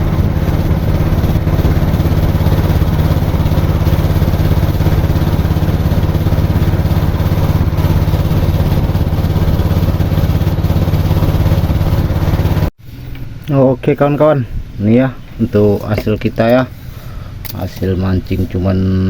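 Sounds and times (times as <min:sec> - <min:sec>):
small petrol boat engine running: 0:00.0 - 0:13.4, 0:15.3 - 0:18.6.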